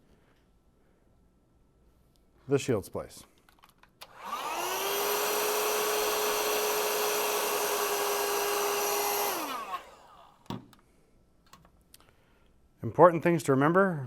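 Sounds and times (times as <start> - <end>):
heat gun fan whine: 4.0 - 10.4.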